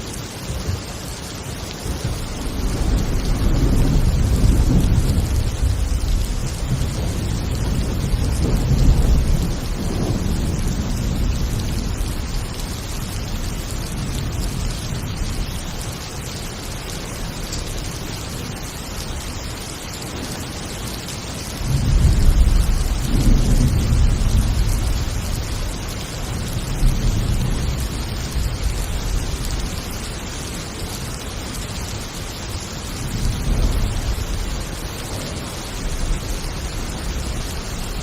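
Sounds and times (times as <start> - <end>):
rain hiss: 0.0 - 38.0
rolling thunder: 0.5 - 19.2, 21.6 - 38.0
loud thunder clap: 1.9 - 12.2, 21.6 - 28.5.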